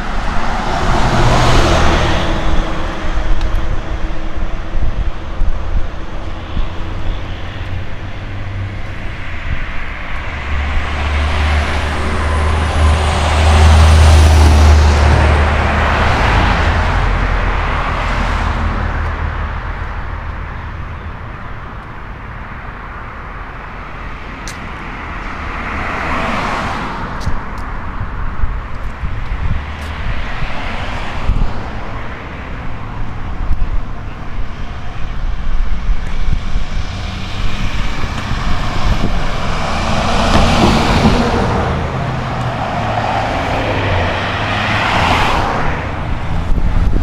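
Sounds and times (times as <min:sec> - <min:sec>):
heavy vehicle rumbling past: 0:00.0 - 0:21.3, 0:34.5 - 0:47.0
vehicle passing: 0:00.0 - 0:21.3, 0:28.9 - 0:47.0.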